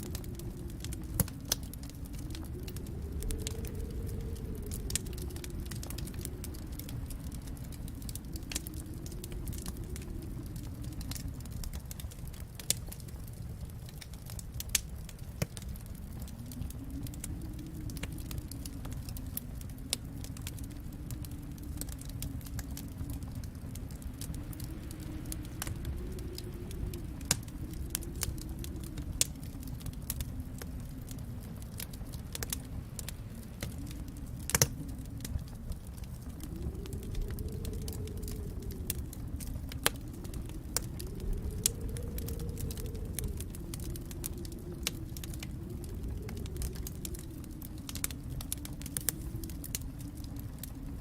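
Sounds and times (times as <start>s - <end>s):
wood fire crackling and popping: 0.0s - 51.0s.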